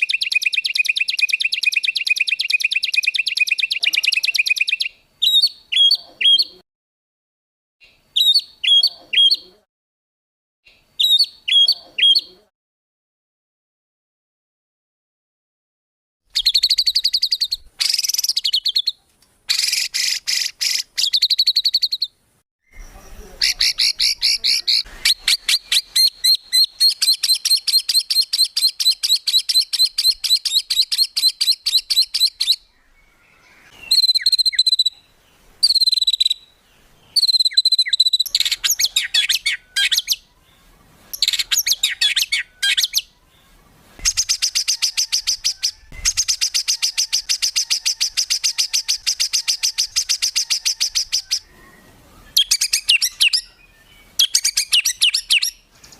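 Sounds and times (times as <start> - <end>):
songbird trilling: 0.0 - 6.6, 16.4 - 40.3, 41.1 - 43.2, 44.0 - 55.6.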